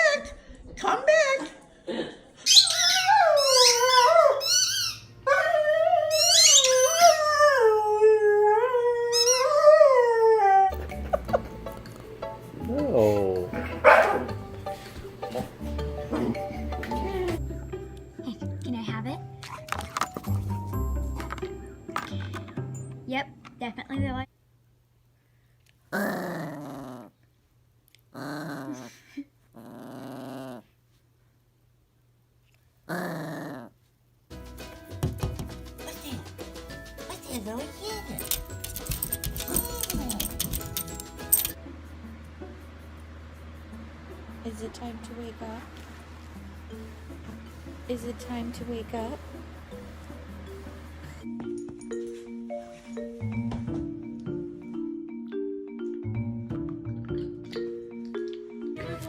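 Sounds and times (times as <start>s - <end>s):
dog growling: 12.7s - 14.4s, 15.2s - 17.4s, 25.9s - 27.2s, 28.1s - 30.7s, 32.9s - 33.8s.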